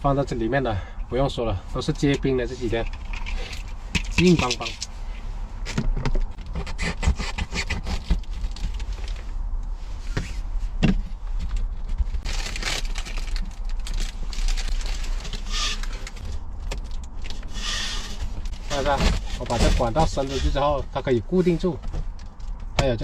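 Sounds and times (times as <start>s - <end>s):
metal pipe rattling and scraping: 2.6s - 4.9s.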